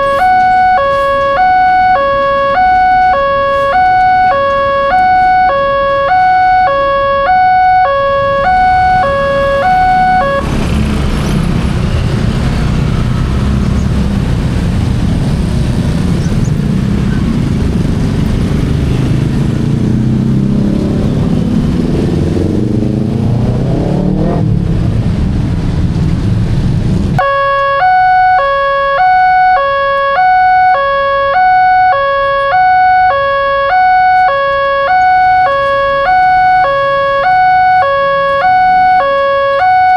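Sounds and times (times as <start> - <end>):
level crossing alarm two-tone: 0.0 - 10.5, 27.2 - 39.9.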